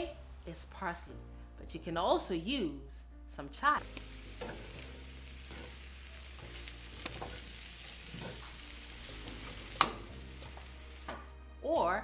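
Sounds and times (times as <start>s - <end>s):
food sizzling in a skillet: 3.8s - 11.4s.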